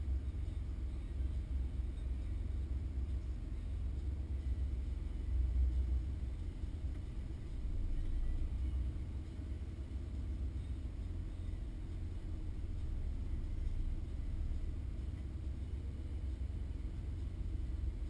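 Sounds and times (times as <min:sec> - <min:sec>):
muffled car engine idling: 0:00.0 - 0:18.0.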